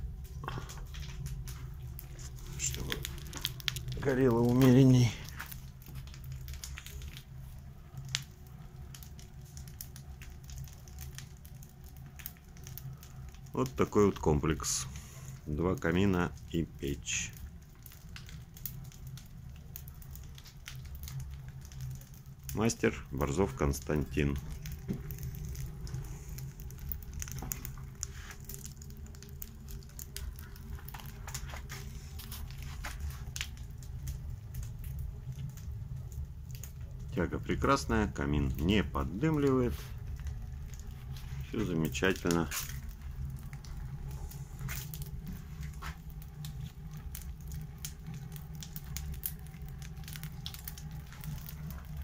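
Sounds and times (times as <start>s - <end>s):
burning wood crackling: 0.0s - 52.0s
flame rumbling up chimney: 0.0s - 52.0s
low hum of fire in flue: 0.0s - 52.0s
wood snapping: 0.4s - 7.3s, 23.8s - 35.6s.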